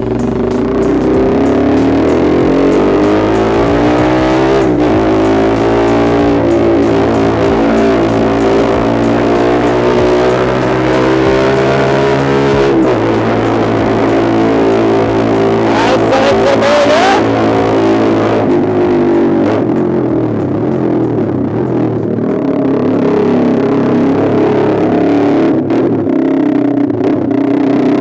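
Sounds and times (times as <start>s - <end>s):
electric guitar music over bass: 0.0s - 28.0s.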